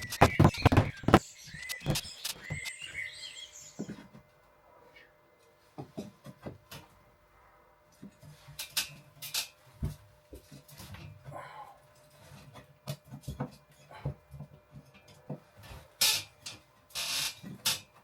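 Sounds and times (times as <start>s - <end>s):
wooden boards knocking: 0.0s - 2.6s.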